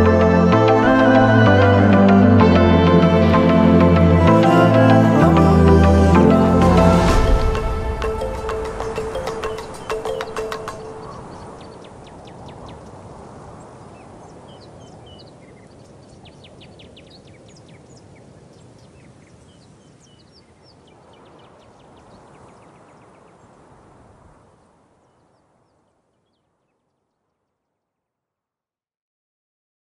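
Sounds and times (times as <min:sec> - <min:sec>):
steady rushing background: 0:00.0 - 0:12.2
bird chirps: 0:08.1 - 0:12.9.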